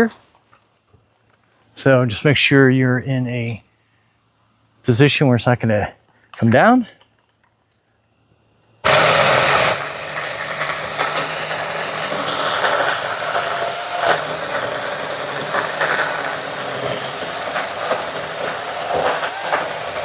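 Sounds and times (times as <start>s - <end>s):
electric chainsaw cutting branch: 8.8s - 20.0s.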